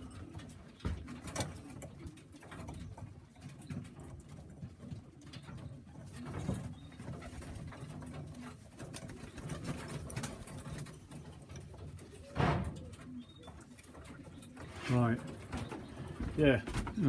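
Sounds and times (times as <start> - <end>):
birds scuffling and clicking: 0.0 - 17.0
pigeons cooing: 0.0 - 17.0.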